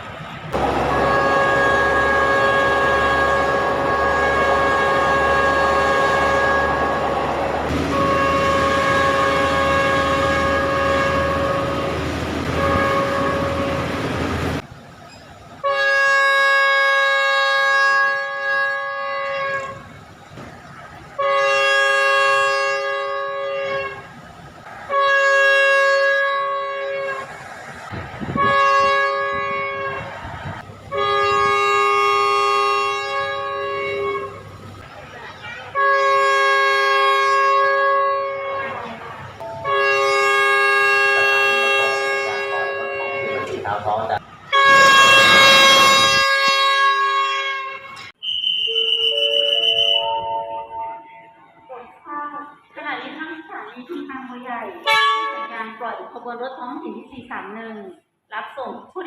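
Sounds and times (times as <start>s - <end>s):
rumble of running train: 0.0s - 55.5s
train air horn: 0.6s - 14.0s, 15.6s - 19.9s, 21.2s - 24.1s, 24.9s - 27.3s, 28.3s - 30.2s, 30.9s - 34.4s, 35.7s - 43.7s, 44.5s - 51.3s, 54.8s - 55.6s.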